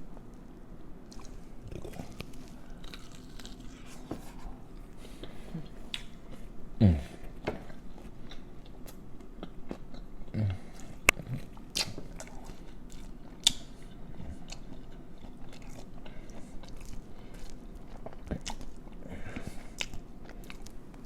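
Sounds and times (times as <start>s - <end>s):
chewing and biting seafood: 1.1s - 4.0s, 14.3s - 20.8s.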